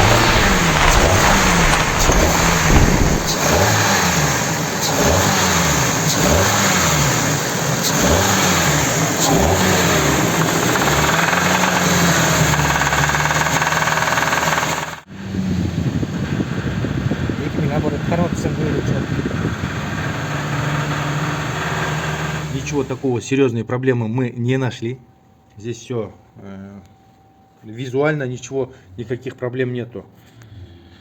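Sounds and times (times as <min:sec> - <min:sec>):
car engine revving: 0:00.0 - 0:15.6, 0:16.2 - 0:23.0.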